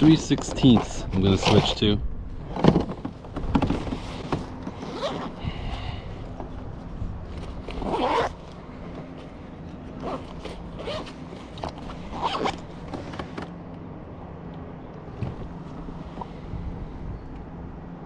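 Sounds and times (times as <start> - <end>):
zipper rasping: 4.7 - 5.4, 7.6 - 8.4, 9.9 - 12.7.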